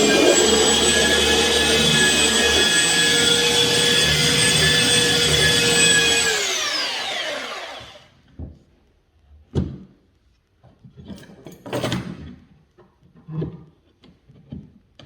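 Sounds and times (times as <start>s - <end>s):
electric sander motor whine: 0.0s - 8.2s.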